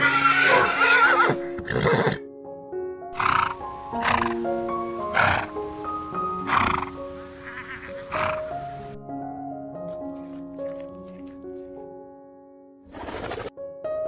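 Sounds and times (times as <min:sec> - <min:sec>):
horse whinnying: 0:00.0 - 0:02.2.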